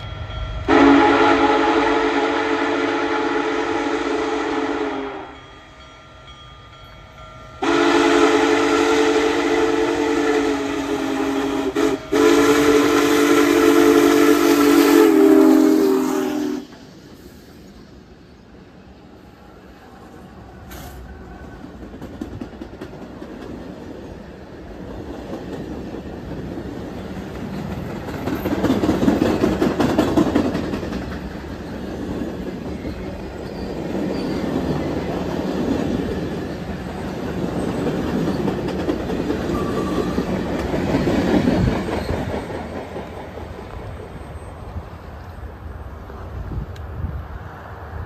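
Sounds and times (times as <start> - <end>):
train wheels clattering on rails: 20.6 - 46.9.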